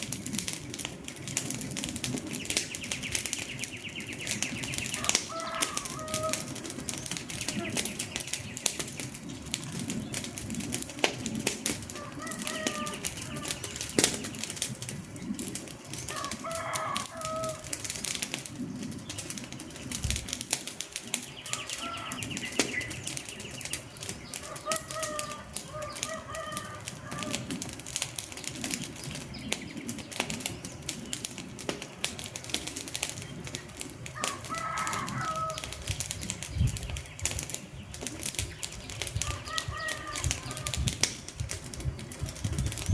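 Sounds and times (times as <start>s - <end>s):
wood fire crackling: 0.0s - 42.9s
bird calls chirping: 2.3s - 10.2s, 11.9s - 14.6s, 21.1s - 27.5s, 33.2s - 40.9s.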